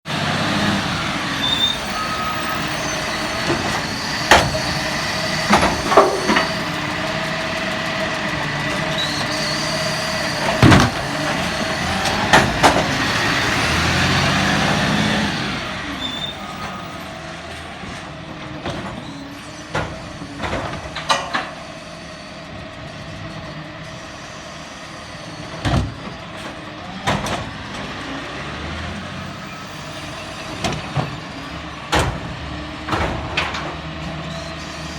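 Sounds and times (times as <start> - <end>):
garbage truck engine running: 0.1 - 34.9
sharp knocks and bangs: 3.2 - 7.0.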